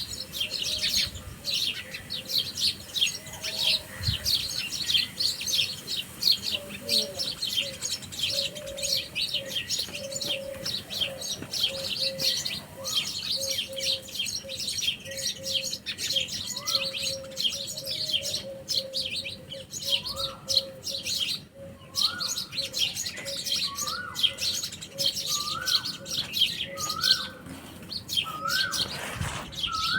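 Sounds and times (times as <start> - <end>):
songbirds chirping: 0.0 - 29.9
bird rising whistle: 28.4 - 29.9.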